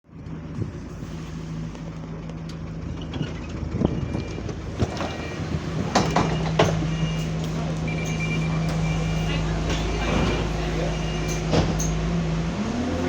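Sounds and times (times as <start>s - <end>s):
bus engine hum: 0.1s - 13.0s.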